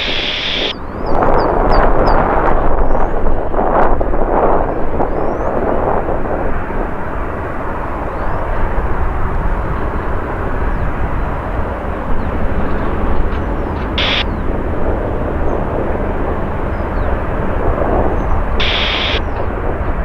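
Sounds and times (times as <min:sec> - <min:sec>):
jet airliner engines roaring: 0:00.0 - 0:20.0.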